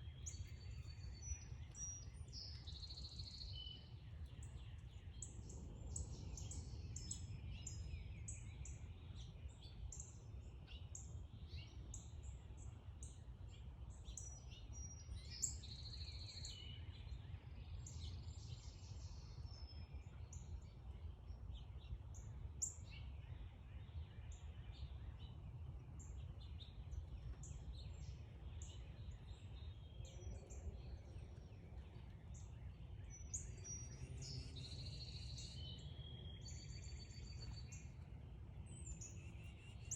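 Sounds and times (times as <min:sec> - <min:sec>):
birds chirping: 0:23.8 - 0:39.9.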